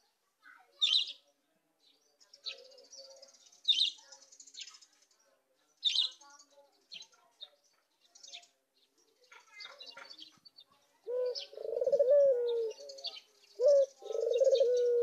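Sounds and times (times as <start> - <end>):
dove cooing softly: 11.0 - 15.0.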